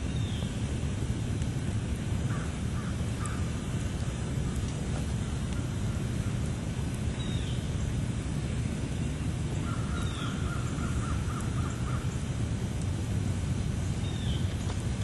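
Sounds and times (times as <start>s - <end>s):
campfire crackling: 0.0s - 15.0s
bird calling: 9.6s - 12.3s.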